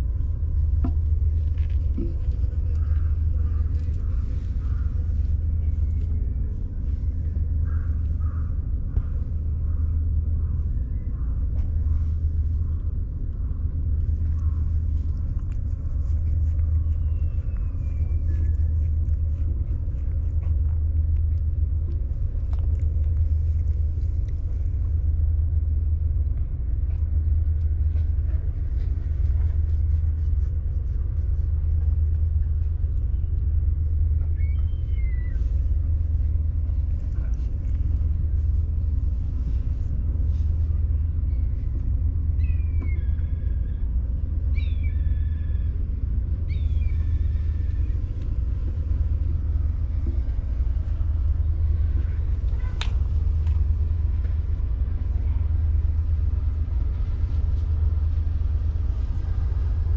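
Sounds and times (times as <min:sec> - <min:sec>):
low rumble: 0:00.0 - 0:59.9.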